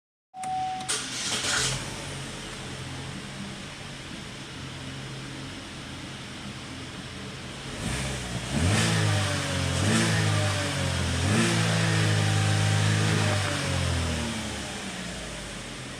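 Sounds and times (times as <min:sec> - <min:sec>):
car engine idling and revving: 0:00.9 - 0:15.9.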